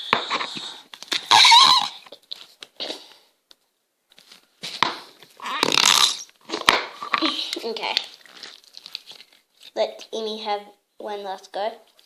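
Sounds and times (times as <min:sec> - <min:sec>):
putty squelching in plastic pot: 0:05.4 - 0:10.1.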